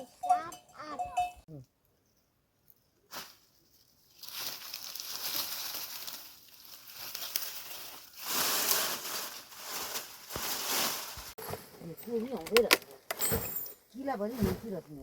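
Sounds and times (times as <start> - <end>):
rustling and crinkling: 2.2 - 15.0.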